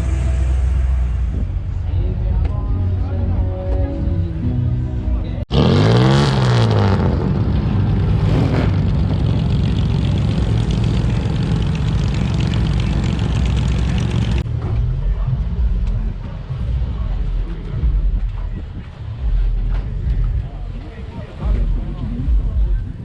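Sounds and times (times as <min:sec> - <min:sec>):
car engine revving: 0:05.4 - 0:18.3.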